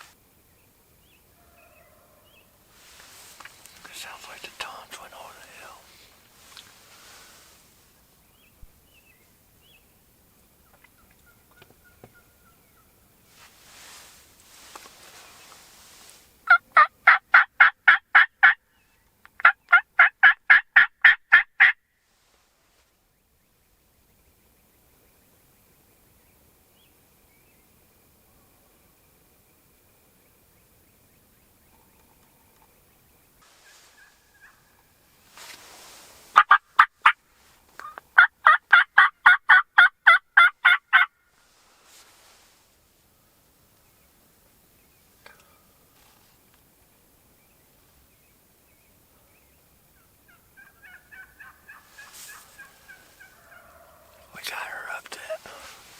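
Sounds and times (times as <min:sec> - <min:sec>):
turkey yelping: 0:19.4 - 0:21.8, 0:36.4 - 0:37.2, 0:37.8 - 0:41.1, 0:50.6 - 0:54.0.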